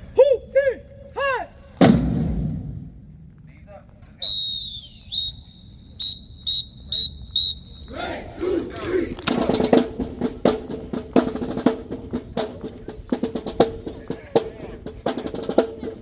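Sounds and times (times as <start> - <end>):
marching drumline: 1.2 - 3.0, 4.8 - 16.0
sharp whistle blasts: 4.2 - 8.0
group shout: 7.9 - 9.2.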